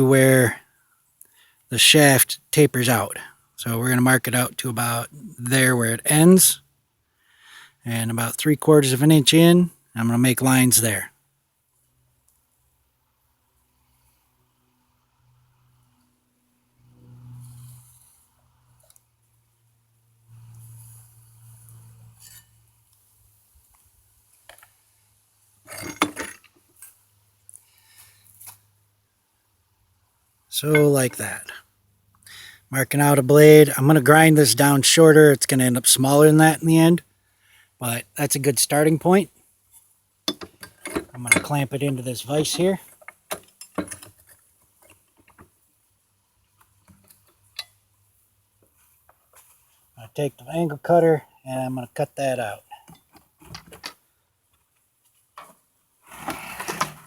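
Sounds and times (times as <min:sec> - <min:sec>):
metal tools clinking and clattering: 0:25.7 - 0:26.6, 0:40.3 - 0:41.6, 0:42.4 - 0:44.4
metal clicks and light taps: 0:40.3 - 0:41.5.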